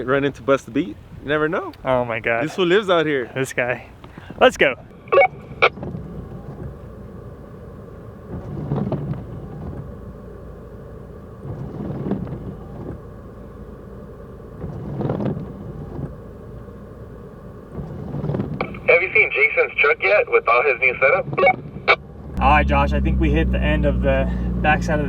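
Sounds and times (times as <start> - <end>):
truck engine and tyres rumbling: 0.0 - 25.0.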